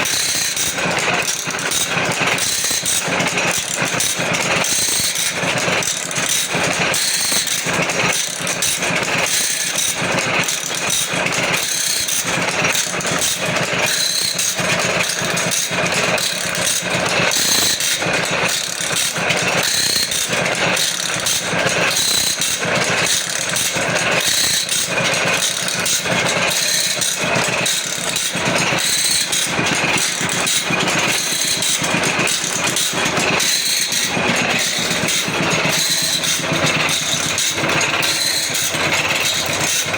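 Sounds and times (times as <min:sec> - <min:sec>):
rapid mechanical clatter: 0:00.0 - 0:39.9
motor hum: 0:10.7 - 0:39.9.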